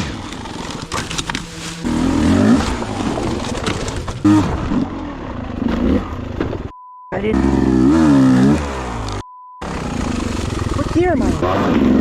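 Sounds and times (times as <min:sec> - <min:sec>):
dirt bike engine revving: 0:00.0 - 0:06.5, 0:07.2 - 0:12.0.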